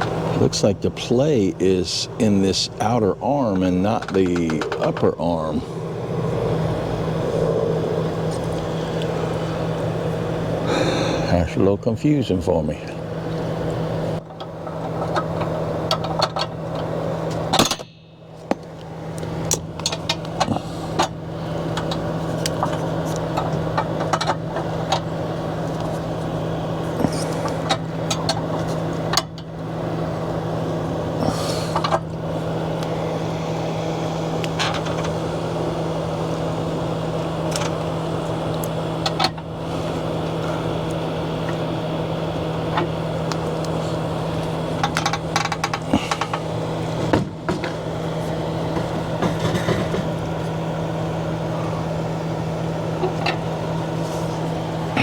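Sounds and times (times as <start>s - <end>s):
low motor hum: 0.0s - 55.0s.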